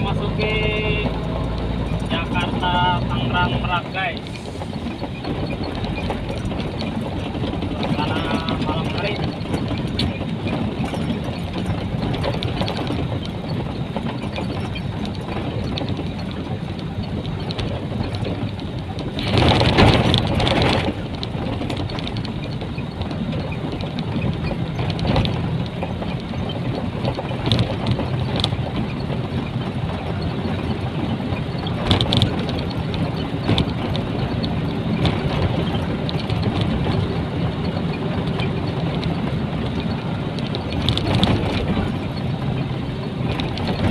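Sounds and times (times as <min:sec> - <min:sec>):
rush of noise: 0:00.0 - 0:13.1
diesel truck engine running: 0:00.0 - 0:43.9
road noise and rattles: 0:00.0 - 0:43.9.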